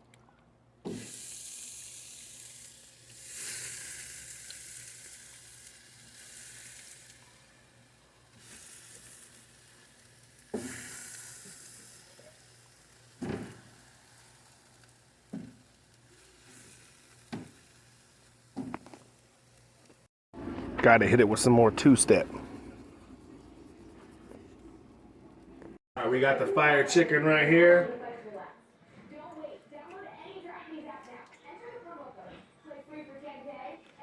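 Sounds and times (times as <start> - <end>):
chicken sizzling on grill: 0.9 - 20.1, 20.8 - 22.8.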